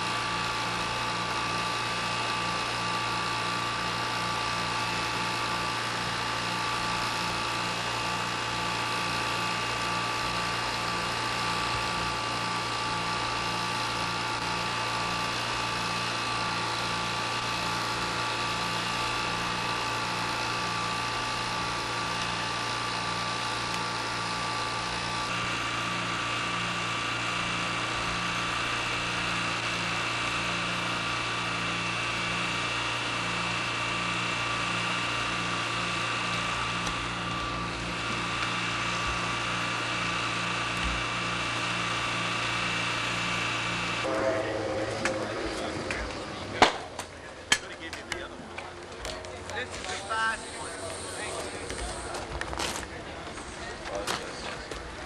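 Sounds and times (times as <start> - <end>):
steady mechanical drone: 0.0 - 55.0
pulsing low hum: 36.5 - 47.6.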